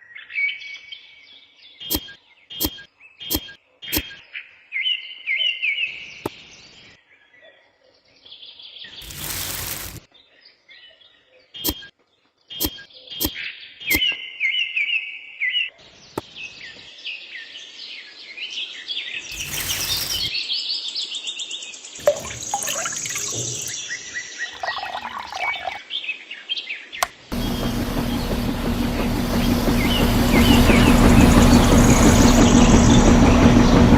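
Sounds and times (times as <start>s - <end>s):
small birds chirping: 15.8s - 33.8s.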